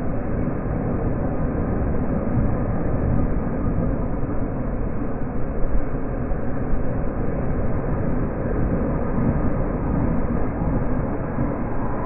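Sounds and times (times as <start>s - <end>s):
rushing air: 10.4s - 12.0s.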